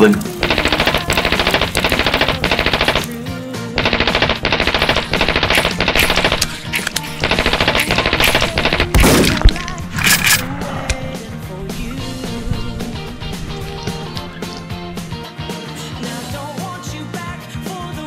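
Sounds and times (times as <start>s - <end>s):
automatic gunfire bursts: 0.4s - 3.2s, 3.8s - 11.2s.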